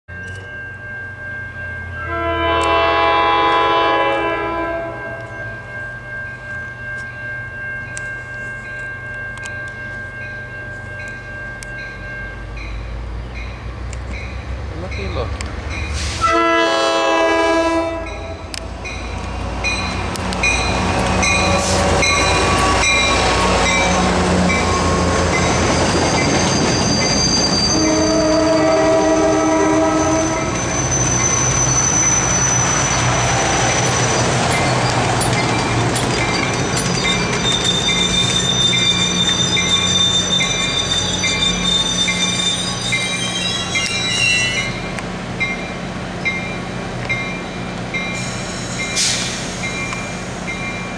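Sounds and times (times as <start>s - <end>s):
train cars rumbling past: 0.1s - 50.9s
train horn: 2.0s - 5.4s, 16.2s - 18.3s, 27.7s - 30.6s
wheels squealing: 19.7s - 44.9s
wheels clacking on rail joints: 30.4s - 50.9s.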